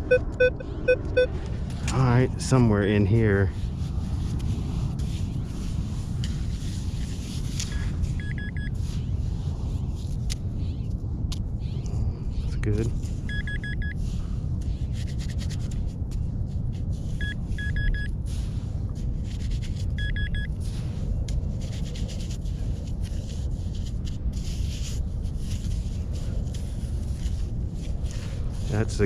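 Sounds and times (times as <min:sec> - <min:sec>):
metal detector beeping: 0:00.0 - 0:01.3, 0:07.7 - 0:08.7, 0:13.3 - 0:14.0, 0:17.2 - 0:18.2, 0:20.0 - 0:20.6
low rumble: 0:00.0 - 0:29.0
scraping in sand: 0:01.7 - 0:10.7, 0:18.2 - 0:29.0.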